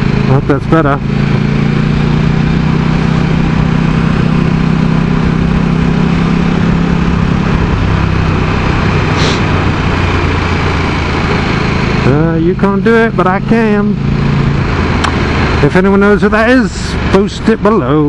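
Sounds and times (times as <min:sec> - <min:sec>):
motorcycle engine running: 0:00.0 - 0:18.0
wind noise: 0:05.2 - 0:12.0.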